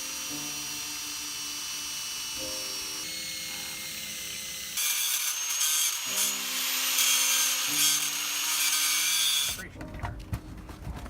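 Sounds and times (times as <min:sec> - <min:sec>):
power tool grinding metal: 0:00.0 - 0:09.6.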